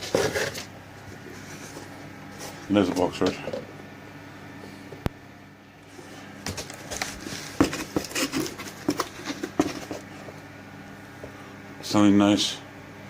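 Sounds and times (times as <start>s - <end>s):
box being handled and opened: 0.0s - 3.4s, 6.5s - 10.3s.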